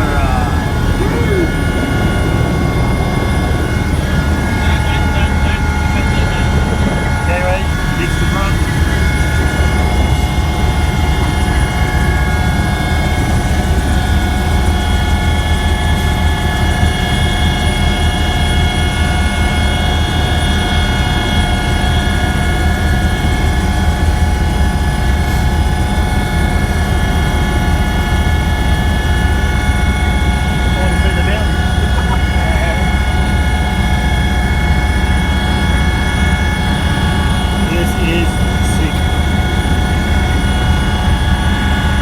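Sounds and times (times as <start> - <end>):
helicopter running: 0.0 - 42.0.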